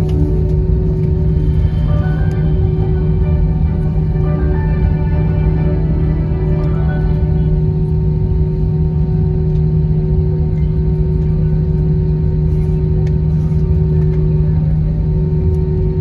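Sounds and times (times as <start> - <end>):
aircraft cabin engine hum: 0.0 - 16.0
steady high tones: 1.2 - 9.0.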